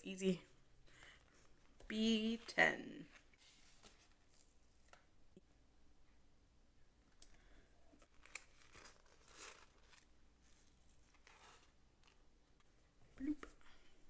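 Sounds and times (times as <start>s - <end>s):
paper rustling: 1.1s - 5.0s, 8.0s - 12.3s.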